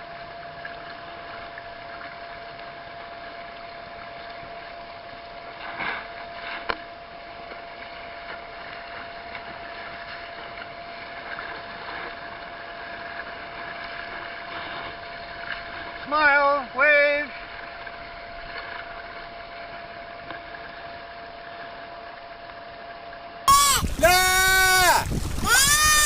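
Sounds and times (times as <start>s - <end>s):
water rushing along hull: 0.0s - 26.0s
water splash: 23.5s - 26.0s.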